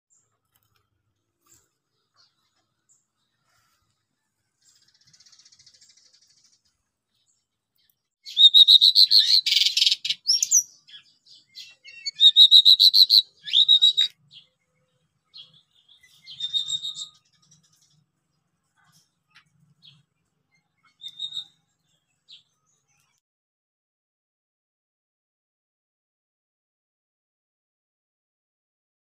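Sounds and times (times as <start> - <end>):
songbird chirping: 0.1 - 23.2.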